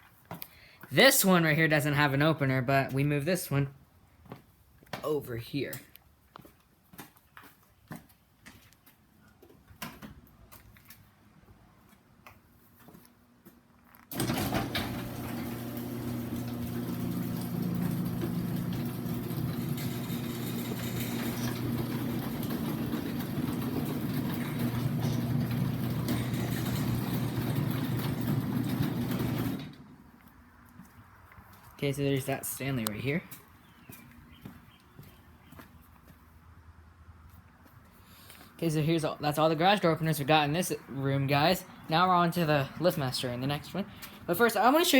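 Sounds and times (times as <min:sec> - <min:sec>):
garage door motor humming: 0:14.1 - 0:30.0.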